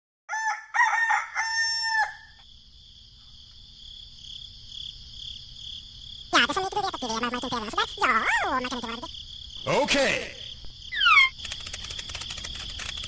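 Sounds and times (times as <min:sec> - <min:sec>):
rooster crowing: 0:00.3 - 0:02.4
insects chirring: 0:00.3 - 0:13.0.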